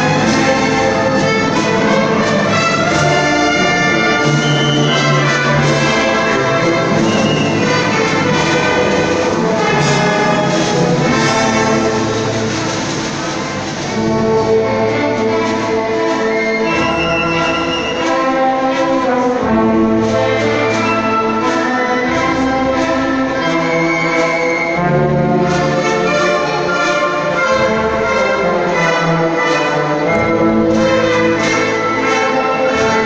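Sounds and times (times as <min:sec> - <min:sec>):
brass section: 0:00.0 - 0:33.0
symphony orchestra playing: 0:00.0 - 0:33.0.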